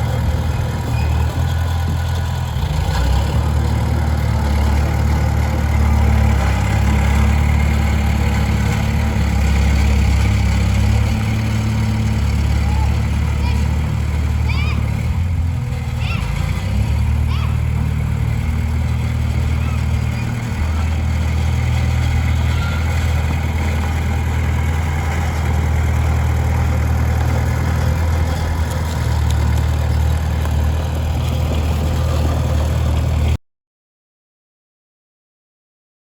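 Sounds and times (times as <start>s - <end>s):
diesel engine droning: 0.0s - 33.4s.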